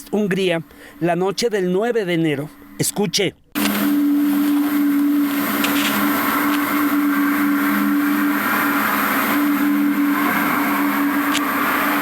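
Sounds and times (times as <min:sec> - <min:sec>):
low droning hum: 0:03.5 - 0:12.0.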